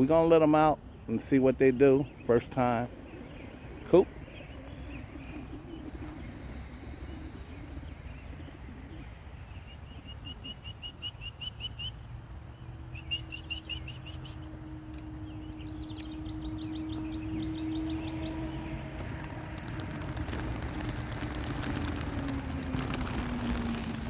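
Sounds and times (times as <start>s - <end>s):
songbird chirping: 0.0s - 24.0s
low outdoor rumble: 14.2s - 24.0s.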